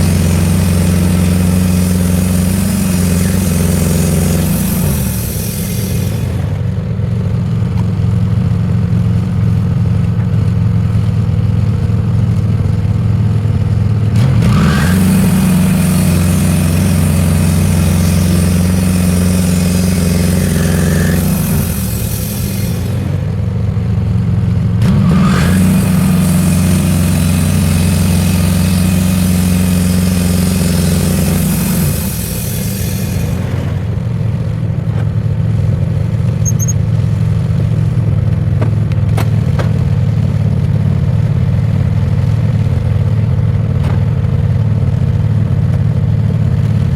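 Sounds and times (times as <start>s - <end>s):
saw blade cutting wood hiss: 0.0s - 6.6s, 14.2s - 23.5s, 24.9s - 33.9s
sawmill engine droning: 0.0s - 46.9s.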